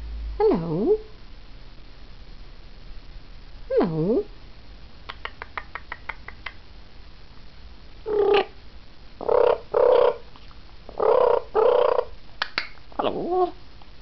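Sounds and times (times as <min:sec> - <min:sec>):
parrot clicking: 0:05.1 - 0:06.6
parrot rasping calls: 0:08.1 - 0:08.6, 0:09.2 - 0:10.2, 0:10.9 - 0:12.2.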